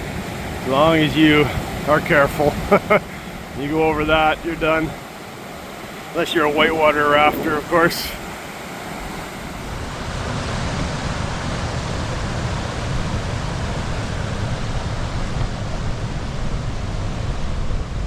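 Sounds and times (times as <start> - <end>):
whitewater rushing: 0.0 - 15.1
wind rumble on microphone: 0.0 - 18.0.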